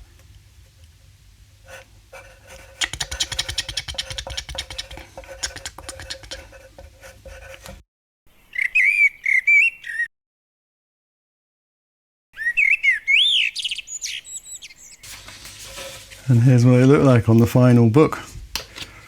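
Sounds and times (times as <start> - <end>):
pen scratching on paper: 1.6 - 7.8
blackbird singing: 8.4 - 10.1, 12.4 - 15.1.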